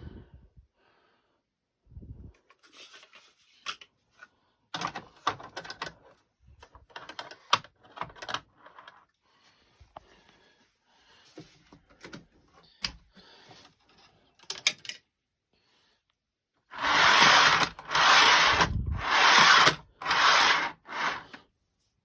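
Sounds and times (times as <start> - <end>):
loud scraping rubbing rushes: 16.7 - 21.4.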